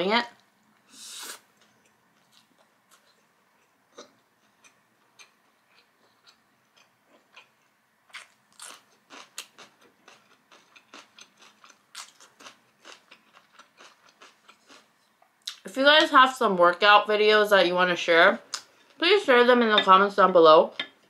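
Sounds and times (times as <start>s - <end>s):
bell pepper crunching: 8.1s - 14.9s.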